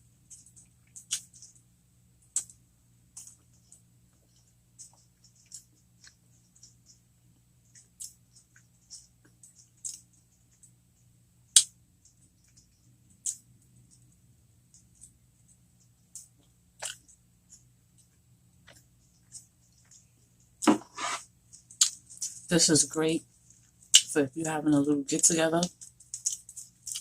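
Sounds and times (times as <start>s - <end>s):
crisp chewing crunches: 0.3s - 1.6s, 25.6s - 27.0s.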